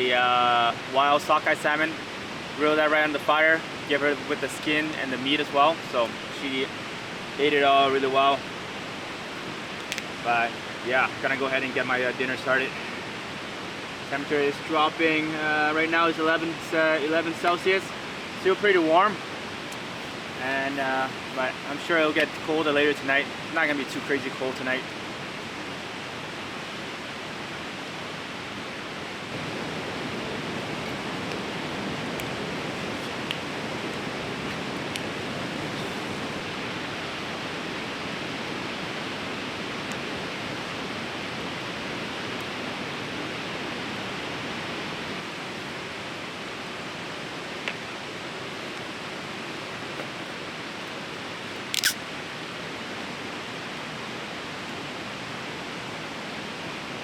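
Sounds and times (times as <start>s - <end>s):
river rushing: 0.0s - 57.0s
sharp click: 51.7s - 52.0s.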